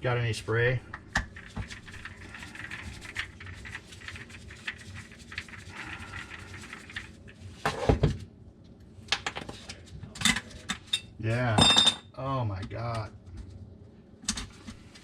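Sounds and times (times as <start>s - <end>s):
tools and parts clicking and rattling: 10.2s - 12.1s.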